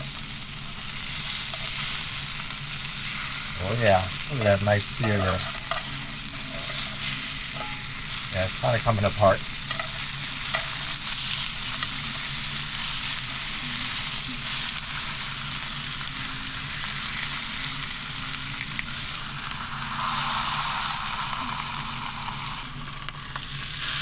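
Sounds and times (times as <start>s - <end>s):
steak sizzling in a skillet: 0.0s - 24.0s
low steady hum: 3.5s - 10.9s.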